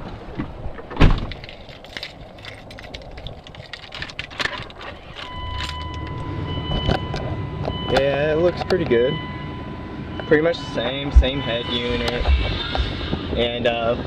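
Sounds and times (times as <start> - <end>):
steady electronic tone: 5.2 - 13.6.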